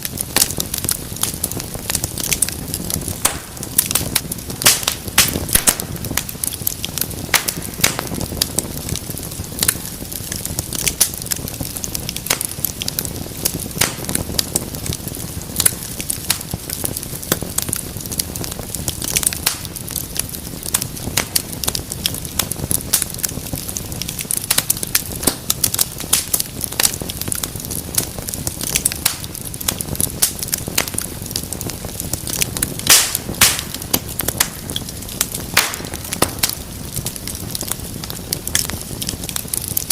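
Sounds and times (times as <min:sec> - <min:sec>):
wood fire crackling: 0:00.0 - 0:39.9
sharp pops: 0:03.2 - 0:04.0, 0:35.5 - 0:36.6.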